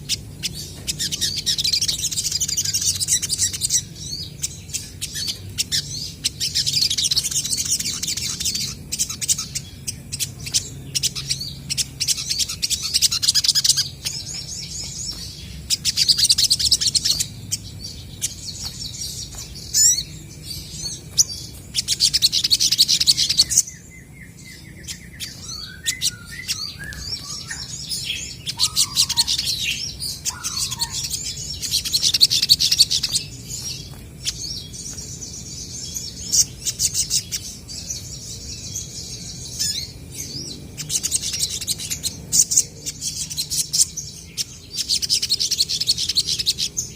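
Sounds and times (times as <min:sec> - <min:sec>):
birds twittering chatter: 0:00.0 - 0:46.9
low whistled bird notes: 0:04.8 - 0:42.1.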